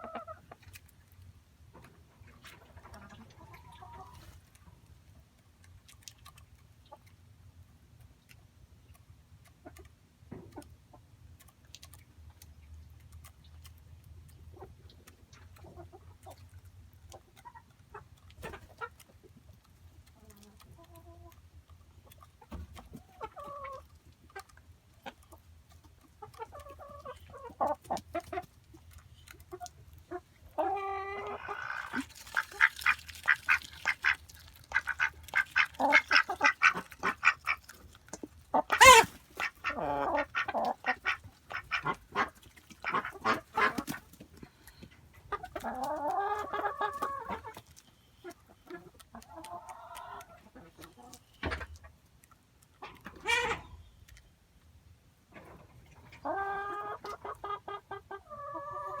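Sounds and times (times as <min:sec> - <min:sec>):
chickens clucking: 0:00.0 - 0:59.0
chicken squawk: 0:30.6 - 0:37.7, 0:38.6 - 0:44.0, 0:53.0 - 0:53.8.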